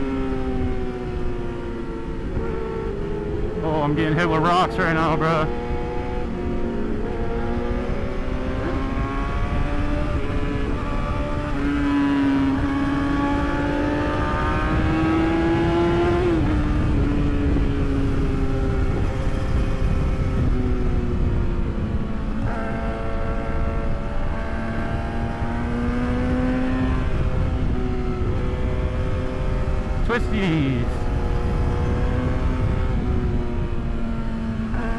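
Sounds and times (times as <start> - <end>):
wind rush on microphone: 5.3 - 34.8
motorcycle engine revving: 5.4 - 21.1, 22.4 - 30.1, 30.9 - 34.9.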